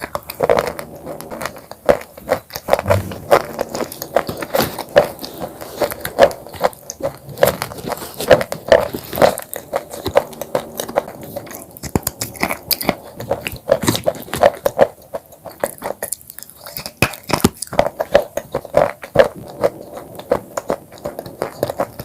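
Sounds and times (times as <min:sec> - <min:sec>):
chewing chips crunches: 0:11.8 - 0:19.2.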